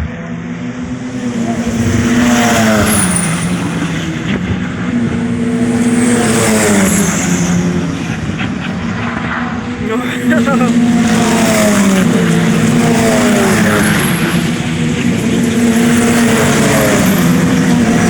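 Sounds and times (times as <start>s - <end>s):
race car engine running hard: 0.0s - 18.0s.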